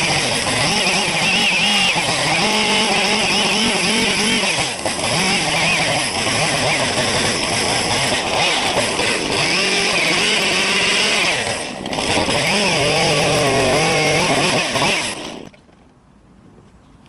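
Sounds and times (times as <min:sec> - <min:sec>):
chainsaw cutting wood: 0:00.0 - 0:15.6.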